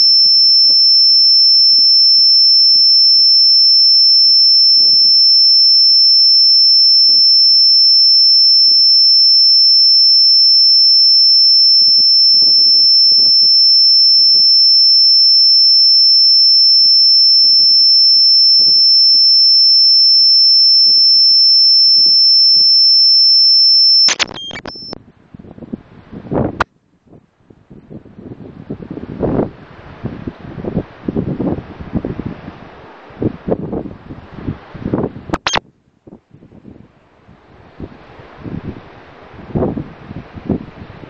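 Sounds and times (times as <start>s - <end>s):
high-pitched electronic tone: 0.0s - 25.0s, 35.4s - 35.6s.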